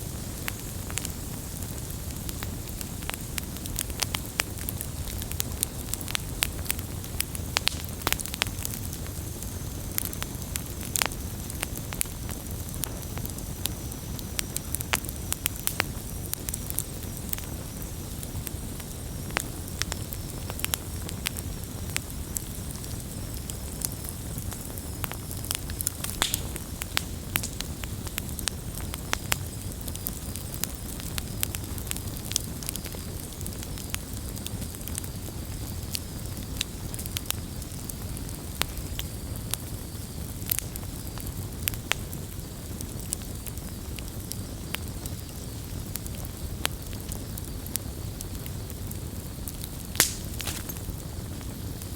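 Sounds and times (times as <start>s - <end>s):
low rush of burning: 0.0s - 31.8s, 44.8s - 51.6s
wood fire crackling: 0.0s - 51.9s
sharp pops: 26.0s - 27.6s, 50.0s - 50.8s.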